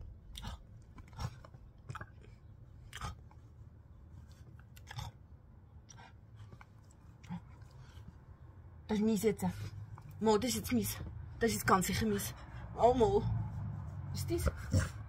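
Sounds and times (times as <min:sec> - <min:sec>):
wet mouth smacks and chewing: 0:00.1 - 0:05.3.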